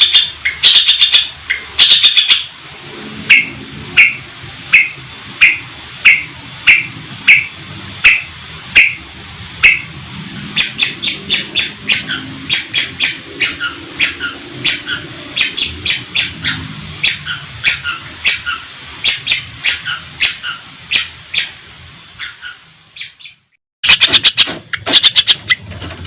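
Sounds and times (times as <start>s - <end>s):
shrike calling harsh notes: 0.0s - 21.6s, 23.8s - 25.6s.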